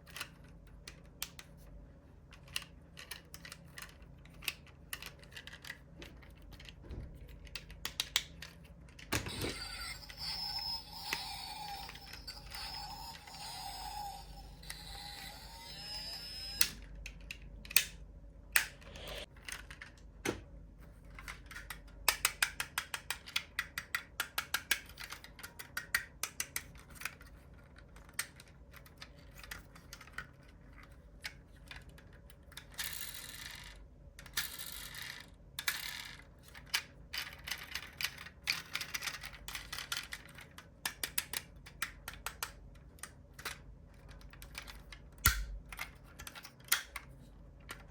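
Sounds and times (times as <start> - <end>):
model cars clicking and rattling: 21.2 - 45.0.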